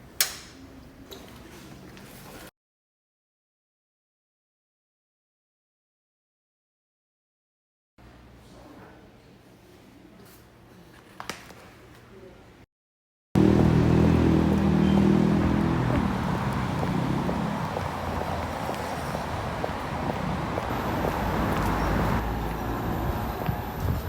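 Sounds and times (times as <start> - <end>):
road traffic noise: 13.4 - 24.0
vehicle engine running close: 13.4 - 24.0.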